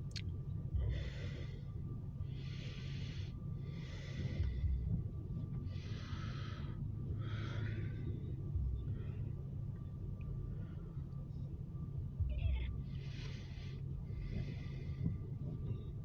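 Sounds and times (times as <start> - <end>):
low rumble: 0.0 - 16.0
person breathing heavily: 0.7 - 9.6, 12.8 - 16.0.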